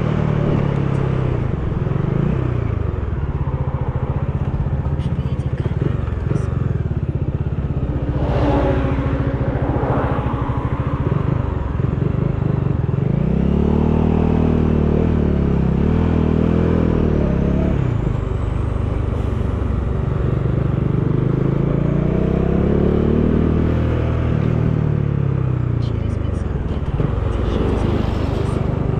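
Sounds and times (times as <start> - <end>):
motorcycle engine revving: 0.0 - 28.9
wind noise: 8.0 - 12.4.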